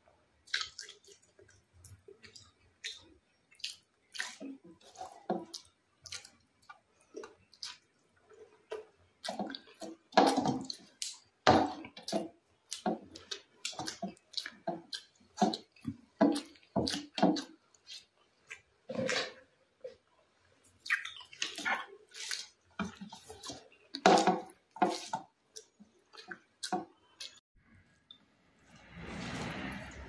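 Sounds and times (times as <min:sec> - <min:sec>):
chewing and mouth smacks: 0:00.4 - 0:19.3, 0:20.7 - 0:27.4.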